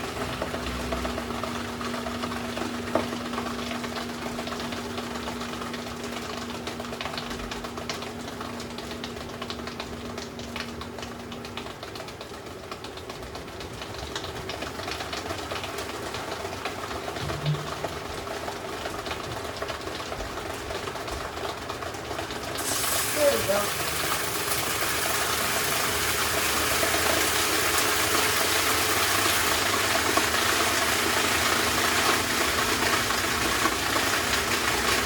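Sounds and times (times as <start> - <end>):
washing machine running: 0.0 - 35.0
steady hum: 17.2 - 18.2.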